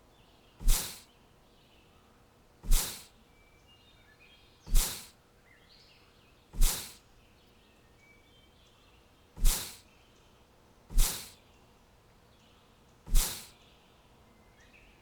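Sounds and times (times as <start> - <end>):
short loud whooshing hisses: 0.6 - 1.0, 2.6 - 3.1, 4.7 - 5.1, 6.6 - 7.0, 9.4 - 9.8, 10.9 - 11.4, 13.1 - 13.5.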